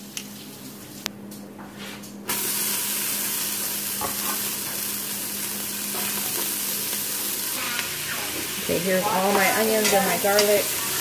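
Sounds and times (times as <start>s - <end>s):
onions sizzling in hot oil: 2.3s - 11.0s.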